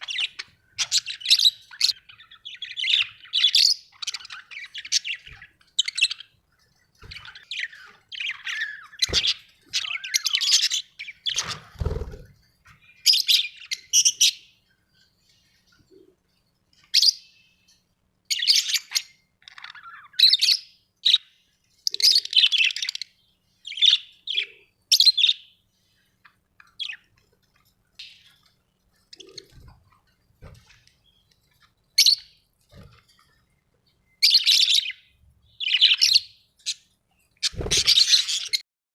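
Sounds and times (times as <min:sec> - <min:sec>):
budgerigars chirping: 0:00.0 - 0:06.4, 0:07.1 - 0:12.2, 0:21.9 - 0:25.5, 0:34.2 - 0:38.6.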